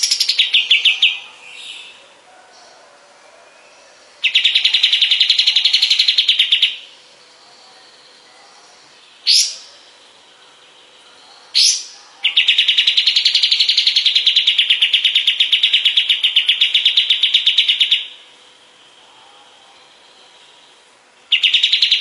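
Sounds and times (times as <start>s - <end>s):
bird rapid trill: 4.2s - 7.1s, 9.1s - 10.8s, 11.4s - 18.3s, 20.4s - 22.0s.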